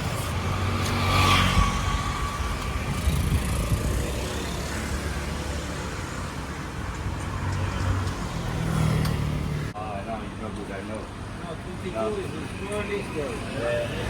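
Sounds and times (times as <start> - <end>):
vehicle passing with whine: 0.0 - 6.0
traffic engine rumble: 0.0 - 14.0.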